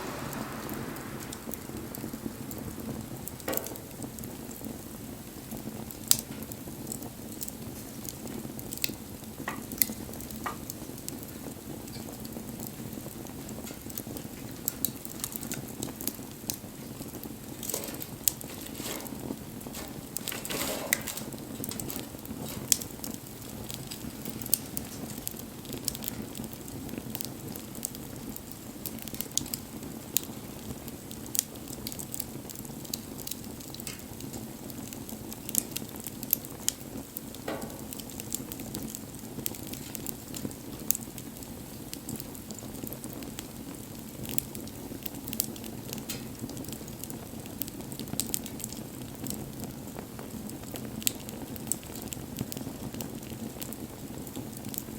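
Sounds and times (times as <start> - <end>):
short hiss: 0.0 - 3.5
rush of bonfire flames: 0.0 - 54.9
wood crackling and popping: 0.0 - 54.9.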